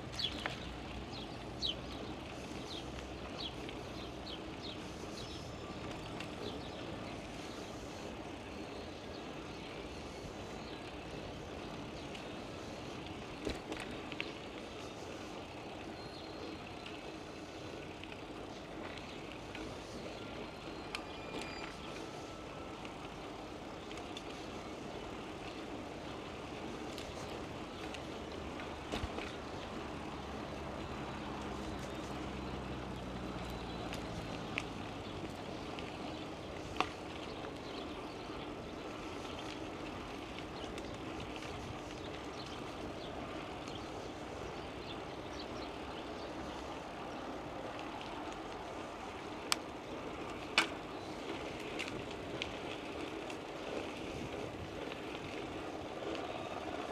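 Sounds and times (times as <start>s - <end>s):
bicycle rolling noise: 0.0s - 56.9s
wind: 0.0s - 56.9s
vehicle engine hum passing: 26.9s - 38.0s.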